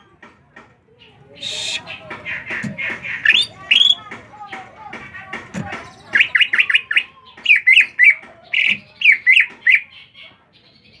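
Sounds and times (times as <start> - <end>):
small bird chirping: 1.1 - 7.9.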